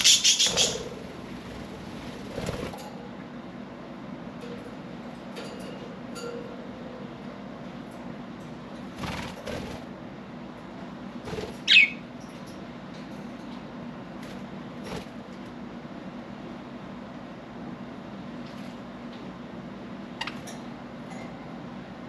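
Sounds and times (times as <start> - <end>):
budgerigar chirping: 0.0 - 1.0, 11.7 - 12.0
wings fluttering: 0.0 - 2.9, 9.0 - 9.9, 11.2 - 12.0.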